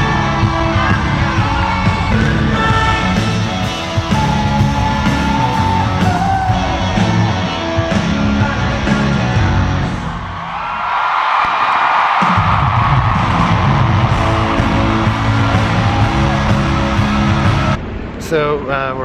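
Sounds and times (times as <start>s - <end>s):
singer holding long notes: 0.0s - 9.6s, 13.0s - 17.8s
drums keeping steady beat: 0.0s - 10.2s, 12.2s - 17.8s
bass: 0.0s - 10.4s, 12.4s - 17.8s.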